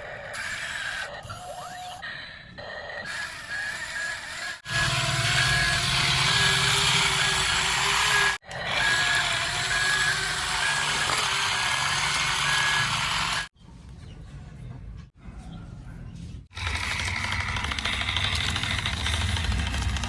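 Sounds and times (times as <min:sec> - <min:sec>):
truck engine: 0:16.6 - 0:20.0.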